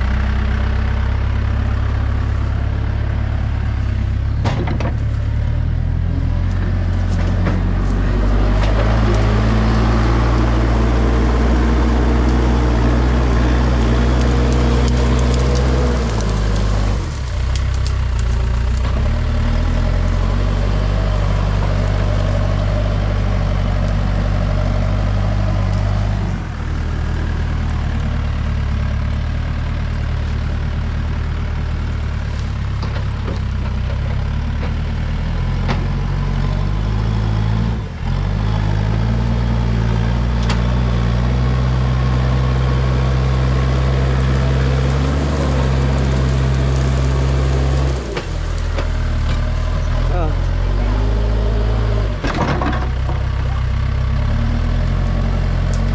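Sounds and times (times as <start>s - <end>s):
backhoe diesel engine running: 0.0s - 55.9s.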